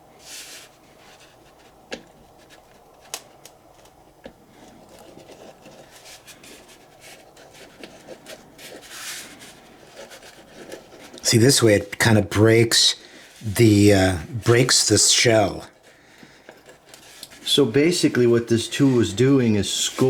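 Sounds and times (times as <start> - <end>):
tool scratching gourd shell: 4.6 - 11.8.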